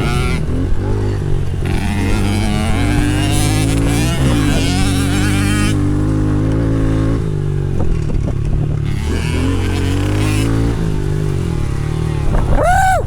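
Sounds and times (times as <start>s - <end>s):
small dirt bike engine running: 0.0s - 13.0s.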